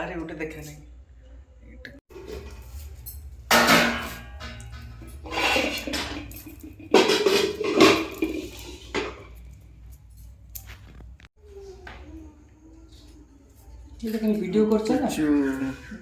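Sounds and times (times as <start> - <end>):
metal utensils and dishes clattering: 2.1 - 10.8.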